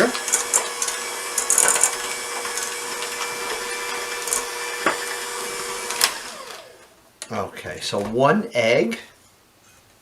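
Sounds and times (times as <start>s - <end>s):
electric hand mixer running: 0.0s - 6.9s.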